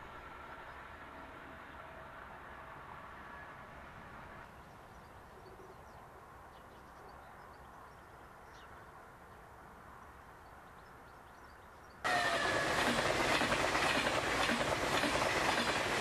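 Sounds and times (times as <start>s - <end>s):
high-speed train passing: 0.0s - 4.9s, 12.0s - 16.0s.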